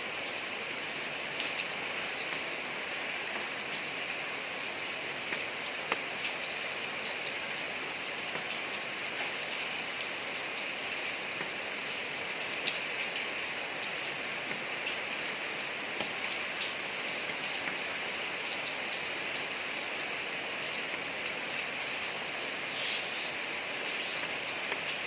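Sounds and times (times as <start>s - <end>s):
rain hissing on a street: 0.0s - 25.0s
raindrops ticking: 0.1s - 25.0s.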